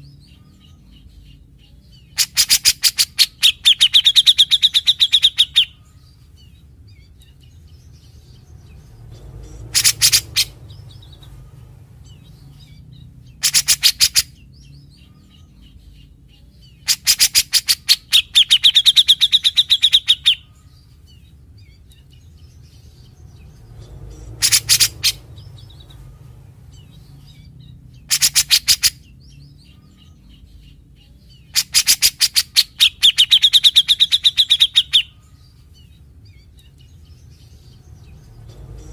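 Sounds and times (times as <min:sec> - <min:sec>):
low steady hum: 0:00.0 - 0:28.1.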